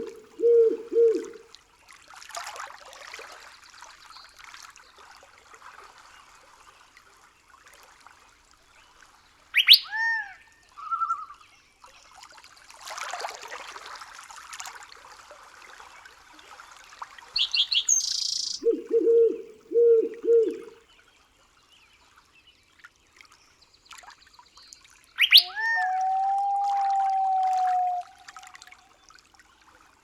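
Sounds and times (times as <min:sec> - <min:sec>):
bird calling: 0:00.0 - 0:01.4, 0:09.6 - 0:10.2, 0:17.4 - 0:20.8, 0:25.2 - 0:28.3.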